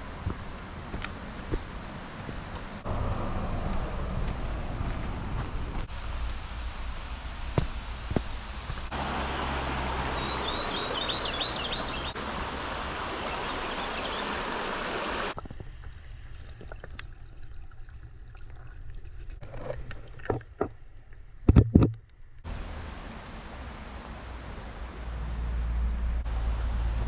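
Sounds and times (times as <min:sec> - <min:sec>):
waterfall rushing water: 0:08.3 - 0:15.4
bird chirps: 0:10.1 - 0:12.2.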